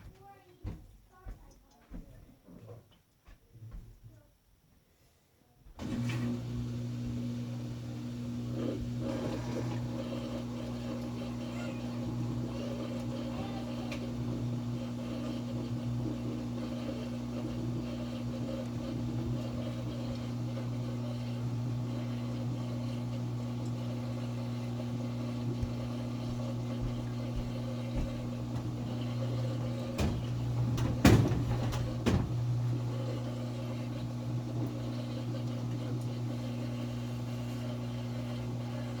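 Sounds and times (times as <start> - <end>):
washing machine humming: 5.8 - 39.0.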